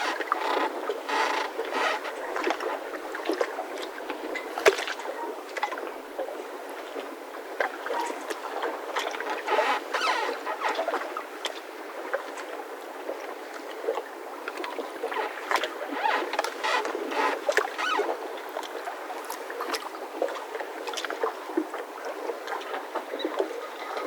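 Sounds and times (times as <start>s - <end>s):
mooring ropes creaking: 0.0s - 3.0s, 9.1s - 11.2s, 15.0s - 18.3s.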